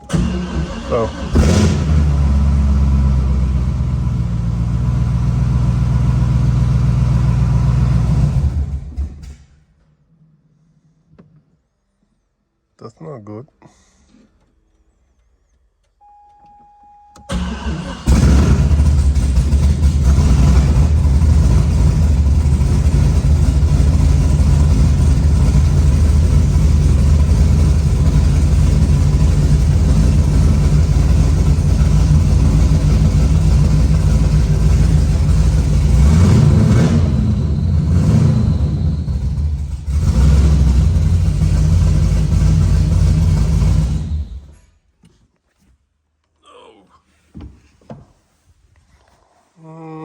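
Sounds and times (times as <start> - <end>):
car engine starting and running: 0.0 - 9.6, 17.2 - 44.6
engine revving: 0.1 - 9.1, 17.3 - 44.5
man speaking: 0.8 - 1.2, 12.8 - 13.9, 46.4 - 47.1
faint short tone: 14.8 - 17.3.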